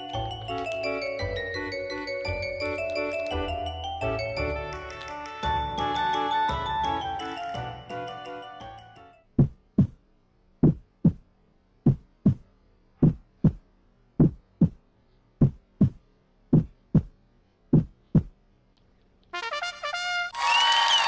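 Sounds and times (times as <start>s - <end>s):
heartbeat double thumps: 9.4s - 10.0s, 10.6s - 14.8s, 15.4s - 18.4s.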